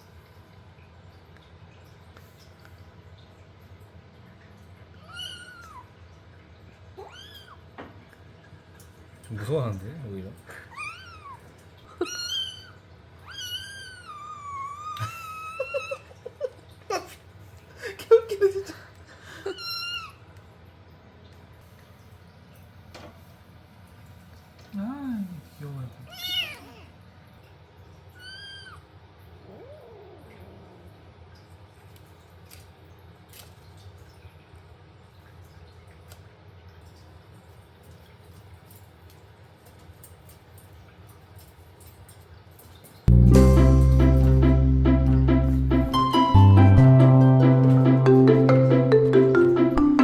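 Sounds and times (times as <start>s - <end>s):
kitten meowing: 7.0s - 7.6s, 10.7s - 16.0s, 26.1s - 26.9s, 28.2s - 28.8s.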